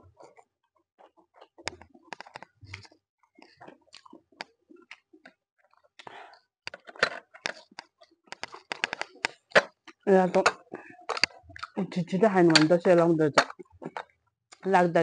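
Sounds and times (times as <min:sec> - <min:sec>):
wet chewing with lip smacks: 0:02.7 - 0:06.4, 0:07.6 - 0:11.8.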